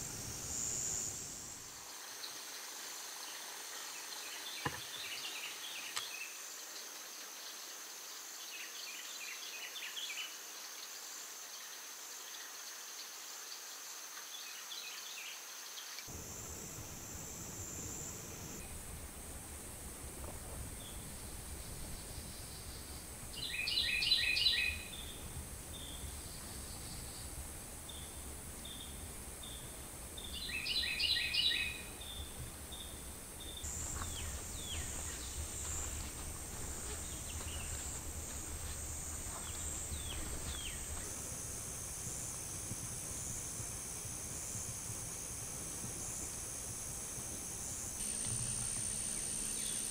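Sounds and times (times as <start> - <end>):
insects buzzing high-pitched: 0.0 - 49.9
bird calling: 20.8 - 27.2, 30.2 - 41.2.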